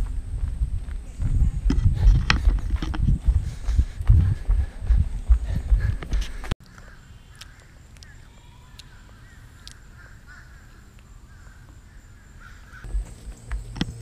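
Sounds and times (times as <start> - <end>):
faint short bird calls: 6.6 - 12.9.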